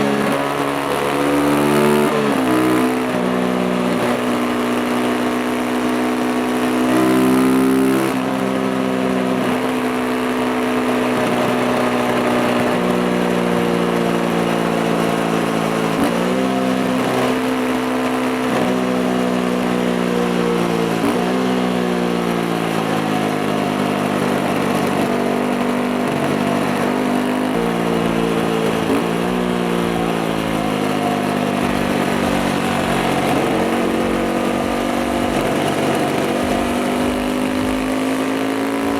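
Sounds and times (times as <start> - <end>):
motorcycle engine changing gear: 0.0 - 38.9.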